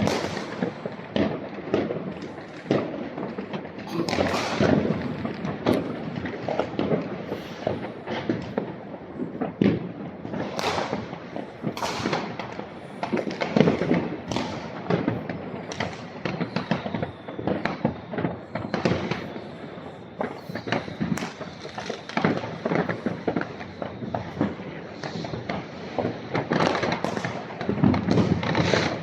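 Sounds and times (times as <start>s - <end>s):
fireworks bangs and crackles: 0.0s - 29.0s
faint high whistle: 15.7s - 25.8s.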